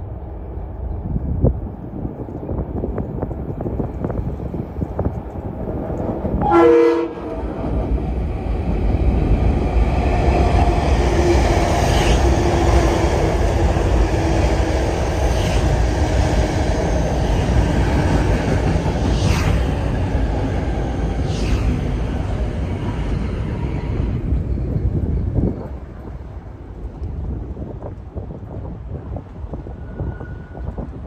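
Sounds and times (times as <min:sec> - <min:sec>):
train rumbling past: 0:00.0 - 0:31.0
train horn blast: 0:06.4 - 0:07.5.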